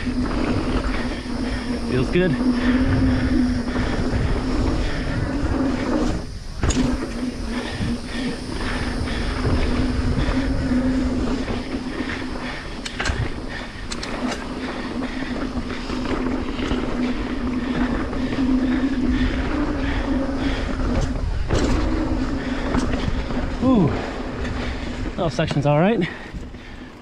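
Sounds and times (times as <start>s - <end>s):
bike tyres humming on dirt: 0.0s - 27.0s
wind rumble on microphone: 0.0s - 27.0s
bike clicks and knocks: 5.7s - 27.0s.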